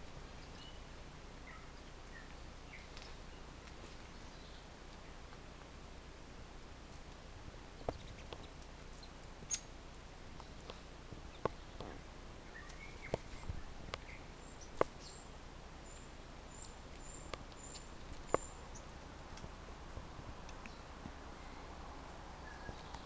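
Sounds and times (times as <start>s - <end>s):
lower bird chirp: 0.0s - 6.0s, 6.8s - 19.0s, 20.4s - 23.0s
high bird calls: 0.4s - 4.7s, 7.8s - 9.8s.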